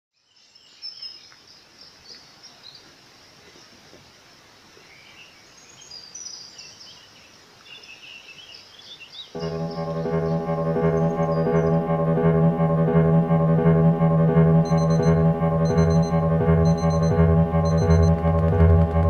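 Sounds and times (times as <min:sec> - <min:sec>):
faint outdoor hiss: 0:00.2 - 0:09.4.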